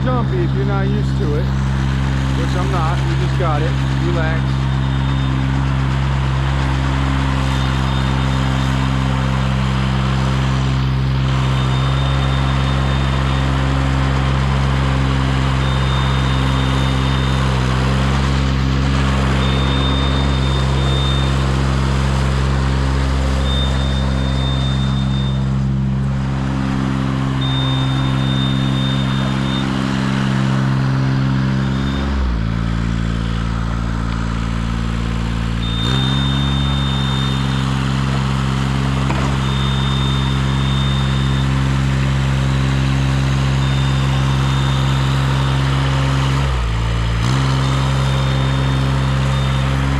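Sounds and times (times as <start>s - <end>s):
engine running steadily: 0.0s - 49.9s
high-pitched tone: 23.2s - 32.4s.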